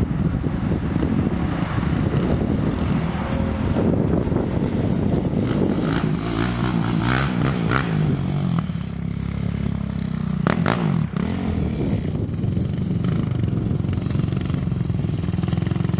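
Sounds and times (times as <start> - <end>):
quad engine revving: 5.2 - 15.9.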